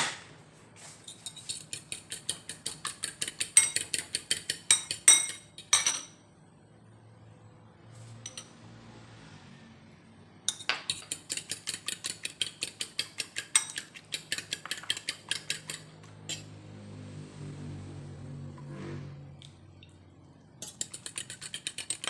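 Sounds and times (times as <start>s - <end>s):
utensil clinking against bowl: 1.1s - 6.2s, 10.5s - 16.5s, 20.6s - 22.0s.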